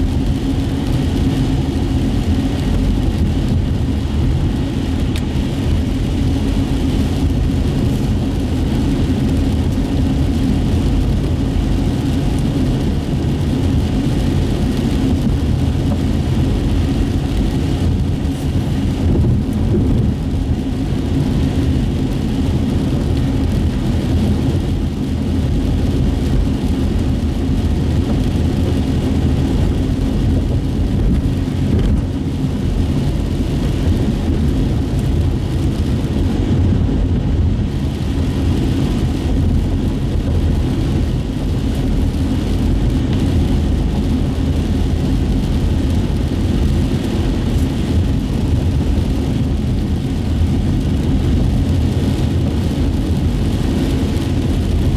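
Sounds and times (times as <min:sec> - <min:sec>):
car engine and road noise: 0:00.0 - 0:54.9
tyres on wet pavement: 0:00.0 - 0:54.9.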